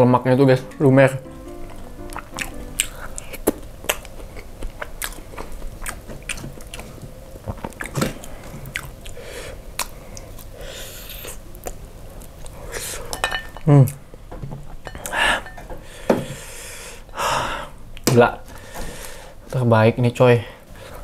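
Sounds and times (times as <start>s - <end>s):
chewing and wet smacks: 2.2s - 10.6s, 11.2s - 12.6s.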